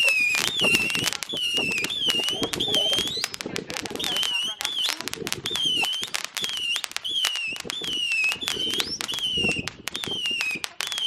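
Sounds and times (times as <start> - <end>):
firework whistles: 0.0 - 11.0
fireworks crackling and popping: 0.0 - 11.0.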